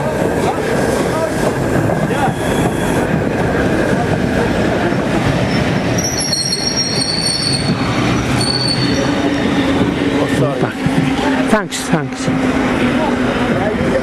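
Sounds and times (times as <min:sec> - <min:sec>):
train wheels rumbling on rails: 0:00.0 - 0:14.0
wheels squealing on rails: 0:00.3 - 0:04.0, 0:04.7 - 0:11.4.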